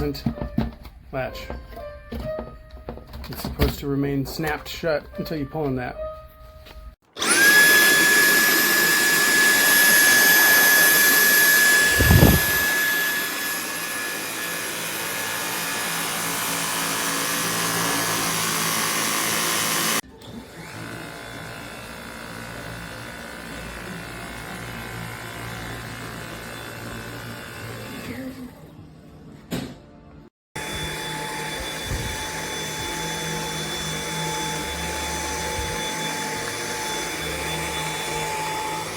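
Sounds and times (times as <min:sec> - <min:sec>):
stick vacuum motor whining: 0:07.0 - 0:28.5, 0:30.6 - 0:38.9.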